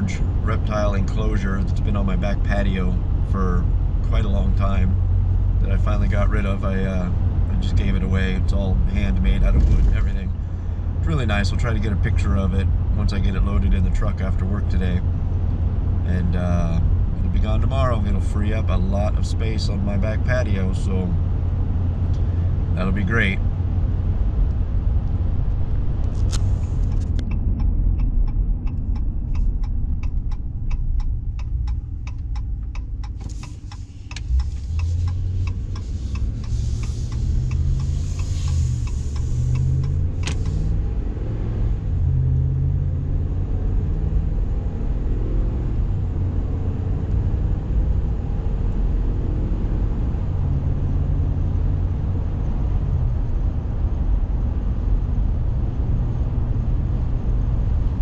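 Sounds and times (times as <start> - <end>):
engine and road rumble: 0.0 - 58.0
even ticks: 26.8 - 40.6.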